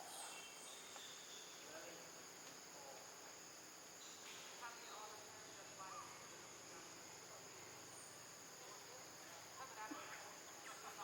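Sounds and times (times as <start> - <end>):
insect chorus drone: 0.0 - 11.0.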